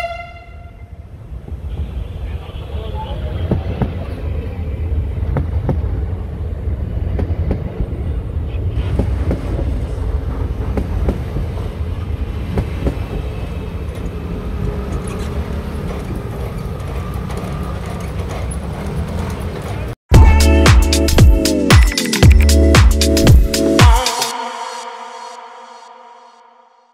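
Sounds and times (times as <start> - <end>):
train rumble: 0.0 - 20.0
wheels clicking over rail joints: 12.5 - 20.0.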